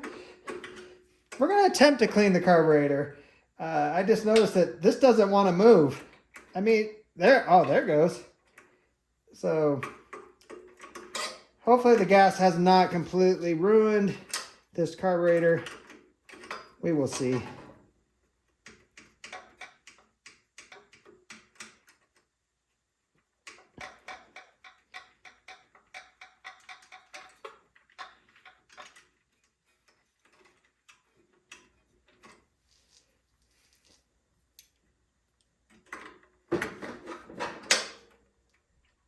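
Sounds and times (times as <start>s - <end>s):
metal parts clicking: 23.4s - 33.1s.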